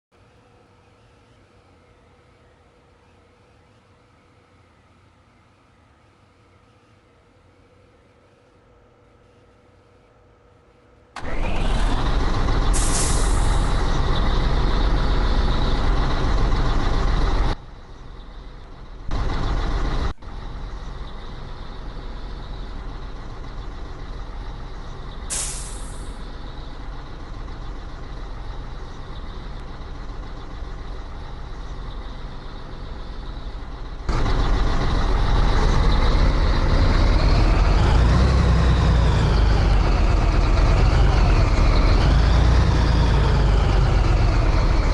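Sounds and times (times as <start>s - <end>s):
truck diesel engine running: 11.2s - 44.9s
air brake hisses: 12.7s - 13.8s, 25.3s - 26.2s.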